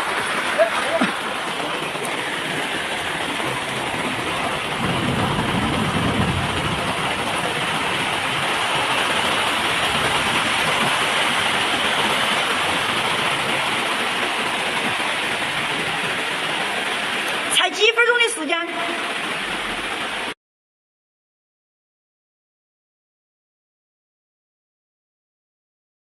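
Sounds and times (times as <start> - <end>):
heavy rain pouring: 0.0 - 20.4
low rumble: 3.0 - 11.0.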